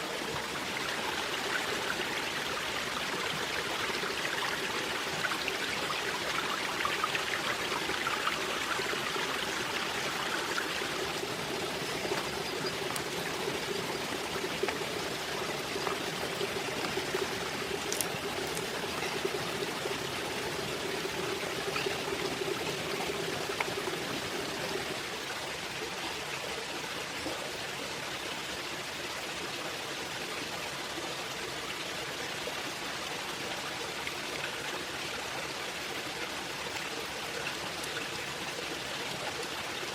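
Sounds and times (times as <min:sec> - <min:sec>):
running water rushing: 0:00.0 - 0:29.0.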